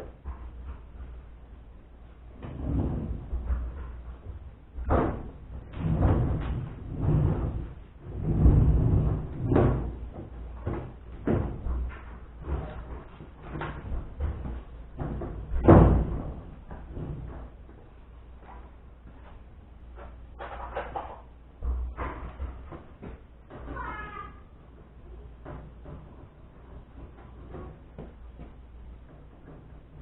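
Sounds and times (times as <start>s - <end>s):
washing machine clunks and knocks: 2.4s - 12.9s, 13.5s - 17.5s.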